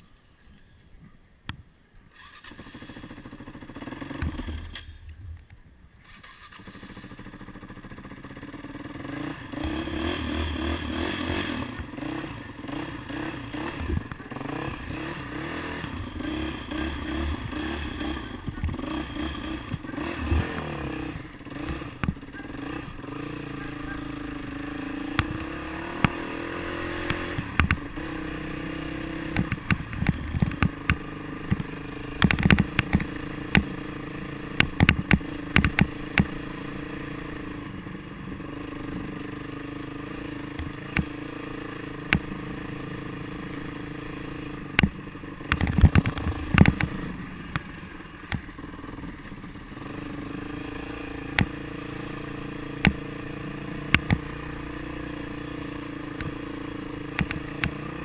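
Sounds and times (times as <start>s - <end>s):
motorcycle engine running: 2.3s - 5.0s, 6.0s - 58.0s
sharp knocks and rattles: 29.3s - 33.7s, 34.6s - 36.4s, 44.8s - 47.6s.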